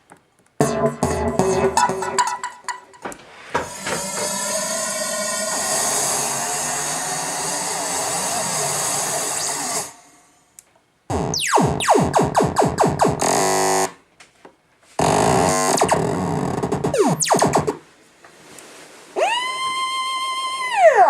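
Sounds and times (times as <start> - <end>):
synthesizer noisy hiss: 0.6 - 2.7, 3.7 - 10.5, 11.1 - 14.0, 15.0 - 17.9
synthesizer falling zaps: 0.6 - 3.0, 11.1 - 14.0, 15.0 - 17.8.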